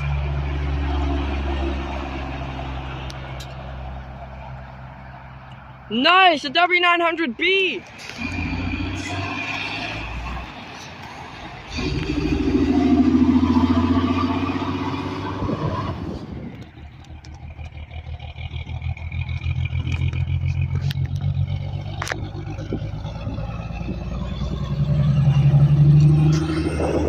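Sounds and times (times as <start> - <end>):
truck engine passing: 0.0 - 27.0
pulsing engine drone: 8.1 - 27.0.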